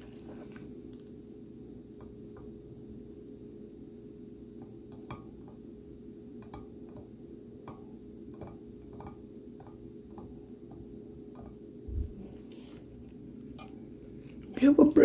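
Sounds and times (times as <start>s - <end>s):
small tools tapping circuit board: 6.4s - 11.6s.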